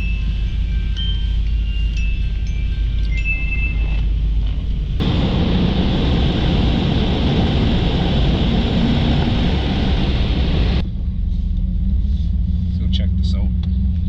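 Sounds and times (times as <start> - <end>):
car engine idling: 4.3 - 14.0
car wash rushing hiss: 5.0 - 10.8.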